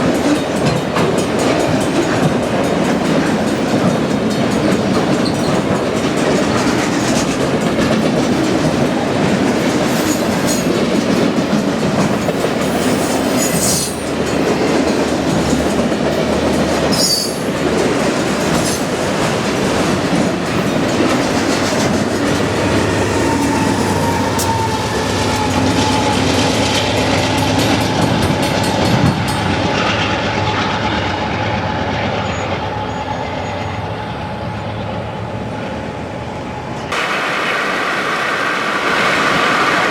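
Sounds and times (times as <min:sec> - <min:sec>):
steel wheels rumbling on rails: 0:00.0 - 0:39.9
faint high wheel squeal: 0:16.9 - 0:17.5, 0:32.2 - 0:35.7.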